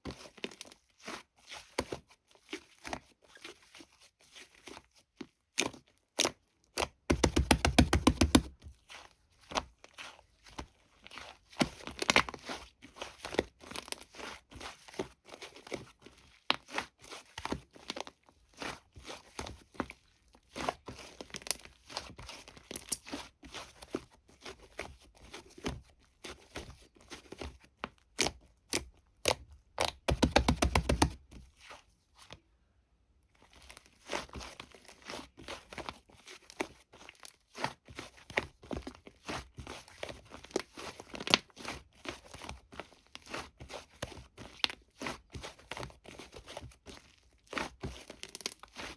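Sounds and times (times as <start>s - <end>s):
taps and clicks: 7.1s - 8.5s, 30.0s - 31.2s.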